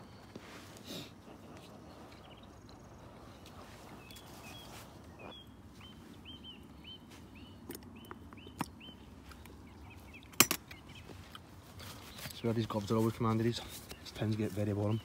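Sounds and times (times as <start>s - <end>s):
small bird calling: 0.8s - 12.4s.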